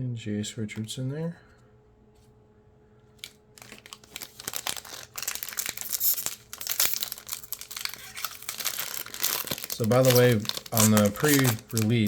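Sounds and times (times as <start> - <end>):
plastic wrapper crinkling and tearing: 3.2 - 12.0.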